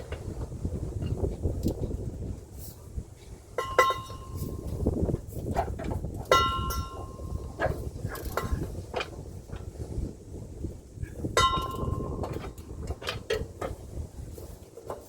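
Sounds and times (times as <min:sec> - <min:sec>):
wind buffeting microphone: 0:00.0 - 0:15.0
metal tools clanking on metal: 0:03.6 - 0:04.8, 0:05.8 - 0:09.2, 0:11.4 - 0:13.8.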